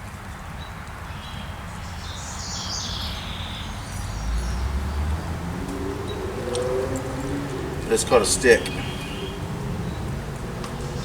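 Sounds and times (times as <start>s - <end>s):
bird chirping: 1.1s - 11.0s.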